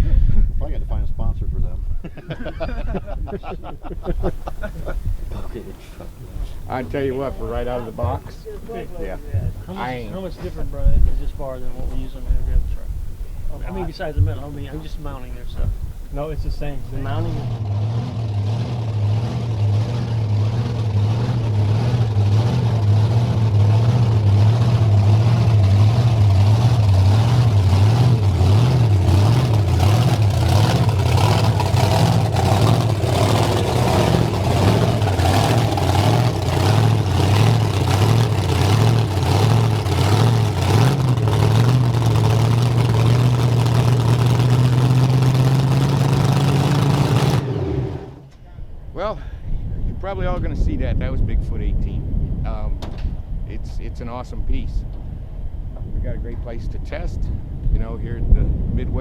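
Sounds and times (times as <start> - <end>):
monster truck engine roaring: 3.8 - 49.1.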